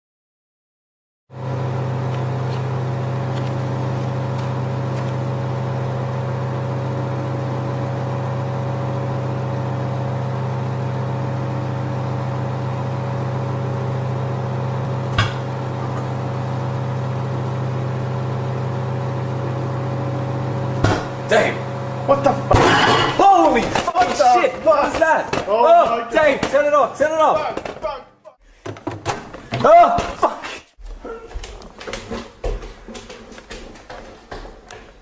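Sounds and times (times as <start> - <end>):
microwave oven humming: 1.3 - 27.4
sharp pop: 20.8 - 21.2.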